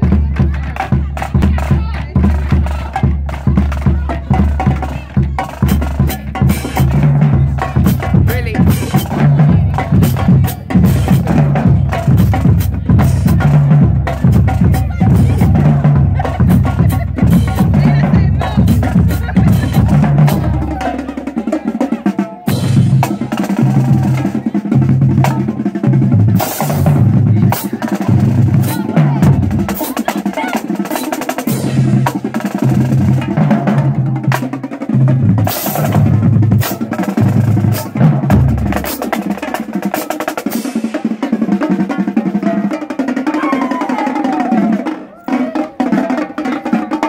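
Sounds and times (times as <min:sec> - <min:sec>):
bass drums pounding: 0:00.0 - 0:21.5, 0:22.5 - 0:30.4, 0:31.4 - 0:39.8.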